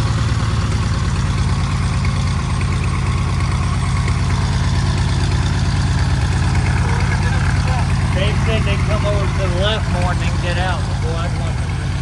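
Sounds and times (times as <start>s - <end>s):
propeller plane engine idling: 0.0s - 12.0s.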